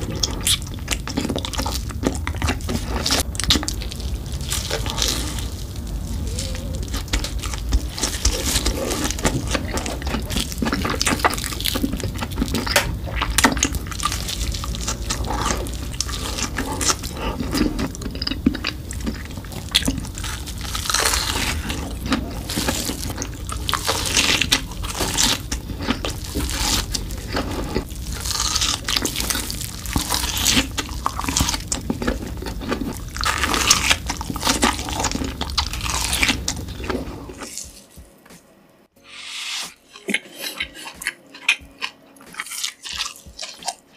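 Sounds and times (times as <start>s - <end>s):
crackly crunchy bites: 0.0s - 37.8s, 39.2s - 43.9s
wet sticky chewing: 0.0s - 38.0s, 39.0s - 43.9s.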